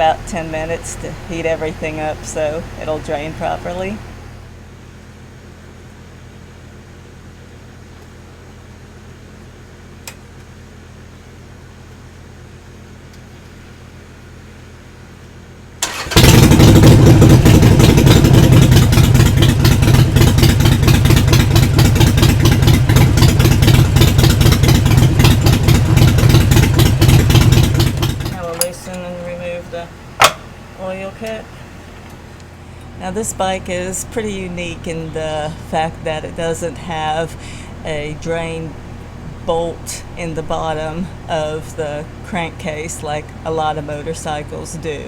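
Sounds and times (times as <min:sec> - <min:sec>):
click: 0:10.0 - 0:10.2
motorcycle engine starting and idling: 0:15.8 - 0:32.2, 0:33.2 - 0:42.1.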